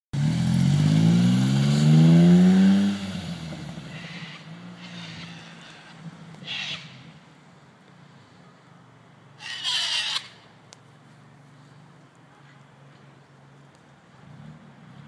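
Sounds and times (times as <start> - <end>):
car engine revving: 0.2 - 5.9.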